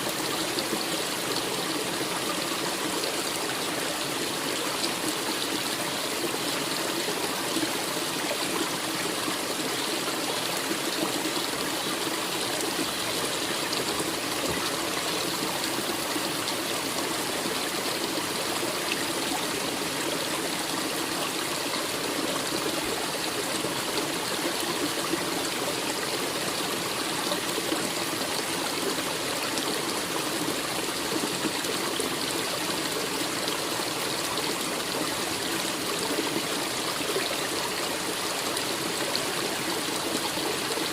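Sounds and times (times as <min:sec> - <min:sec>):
forest stream running: 0:00.0 - 0:40.9.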